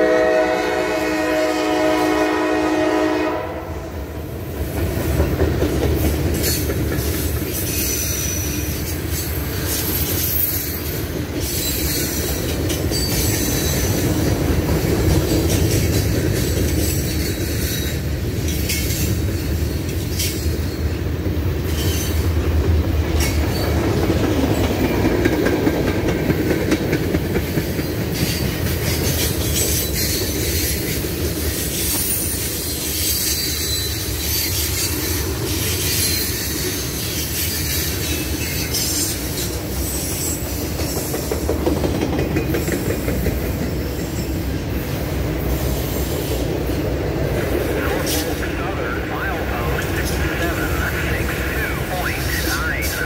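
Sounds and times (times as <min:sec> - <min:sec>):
steel wheels rumbling on rail: 0:00.0 - 0:53.0
high wheel squeals: 0:31.8 - 0:40.5.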